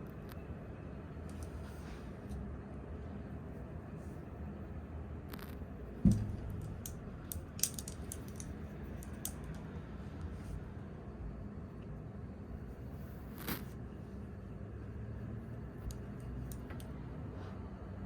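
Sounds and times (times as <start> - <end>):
steady low hum: 0.0 - 18.0
heavy low thump: 6.0 - 7.6
light clicks and taps: 15.8 - 17.0.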